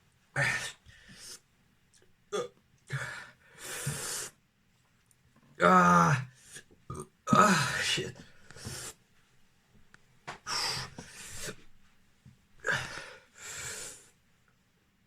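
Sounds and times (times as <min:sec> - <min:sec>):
man panting heavily: 0:02.9 - 0:04.3, 0:07.4 - 0:09.0, 0:12.6 - 0:14.0.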